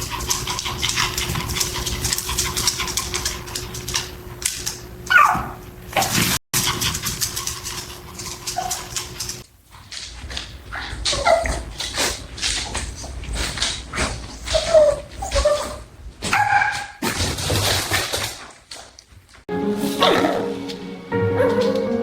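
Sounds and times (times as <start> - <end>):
dogs whimpering and barking: 5.0 - 6.2, 10.8 - 17.0, 19.8 - 22.0
dog whining: 5.1 - 6.1, 10.8 - 13.2, 14.1 - 17.0.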